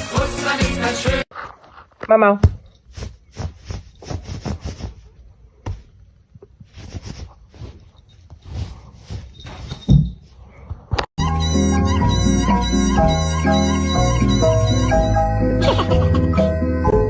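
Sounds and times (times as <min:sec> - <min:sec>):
music: 0:00.0 - 0:01.3, 0:11.2 - 0:17.0
scuffling noises: 0:01.3 - 0:06.0, 0:06.6 - 0:11.0.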